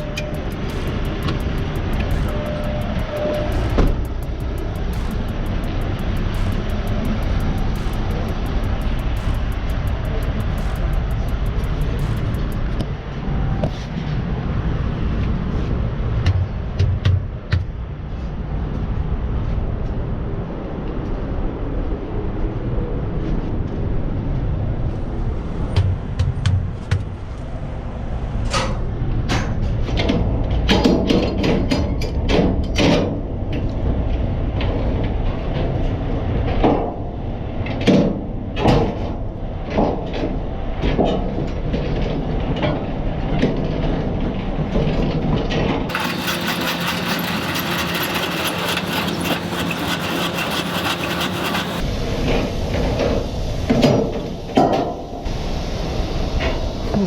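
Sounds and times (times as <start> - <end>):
metallic clanks and knocks: 0.0 - 12.8
truck idling: 0.0 - 13.1.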